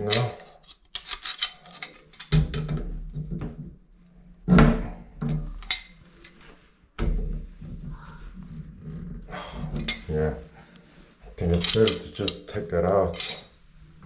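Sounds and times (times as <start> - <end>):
metal tools clanking and scraping: 0.0 - 2.8, 9.6 - 10.2, 11.3 - 13.6.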